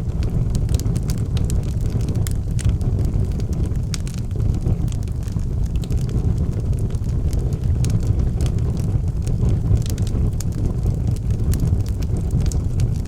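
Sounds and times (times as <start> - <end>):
fireplace fire crackling: 0.0 - 13.0.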